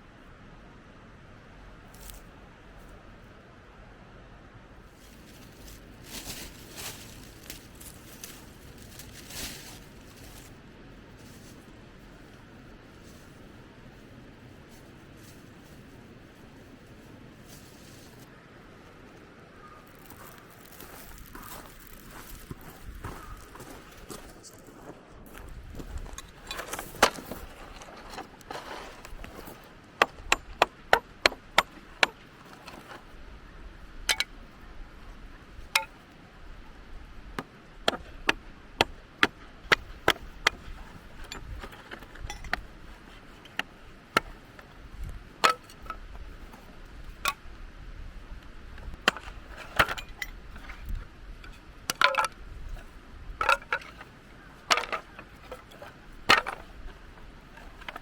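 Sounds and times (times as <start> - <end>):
firewood splitting cracks: 54.7 - 56.7.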